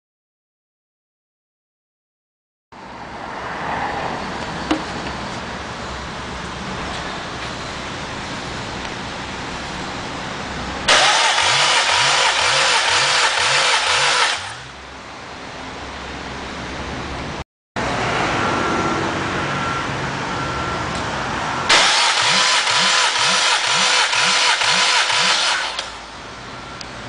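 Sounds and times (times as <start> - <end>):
engine cranking by starter motor: 10.8 - 14.7, 21.7 - 26.1.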